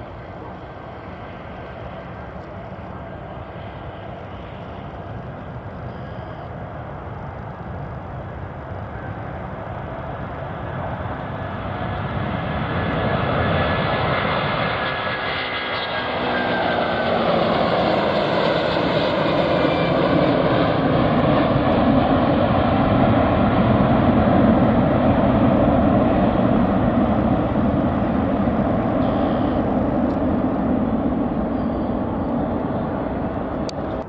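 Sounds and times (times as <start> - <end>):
airplane engines: 0.0 - 34.0
engine whine falling in pitch: 28.6 - 34.0.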